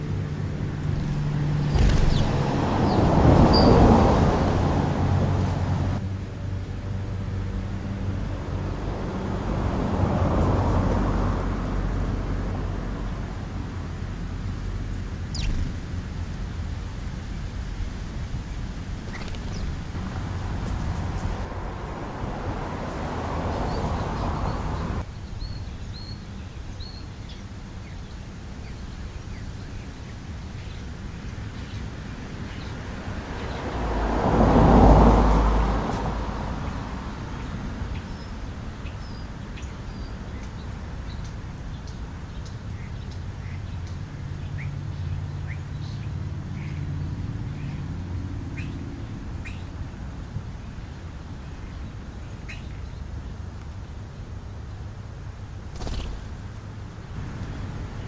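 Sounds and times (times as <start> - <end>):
broad rush of noise: 0.0 - 25.2.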